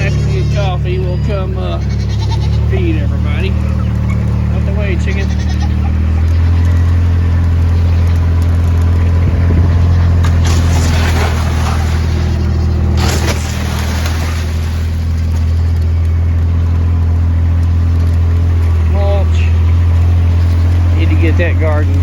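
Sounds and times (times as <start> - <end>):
vehicle engine humming: 0.0 - 22.0
rough rushing noise: 8.4 - 15.8.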